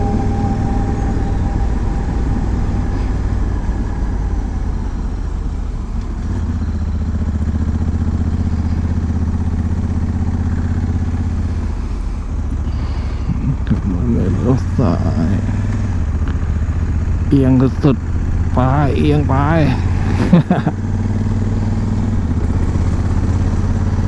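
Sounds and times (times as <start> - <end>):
wind noise: 0.0 - 6.9
motorcycle engine running: 0.0 - 24.0.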